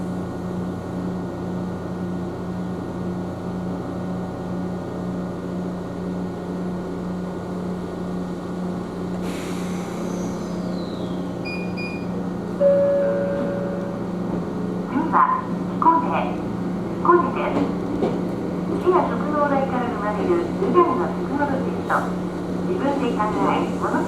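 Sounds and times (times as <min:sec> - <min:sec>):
electric train hum: 0:00.0 - 0:24.0
short chime: 0:12.6 - 0:14.0.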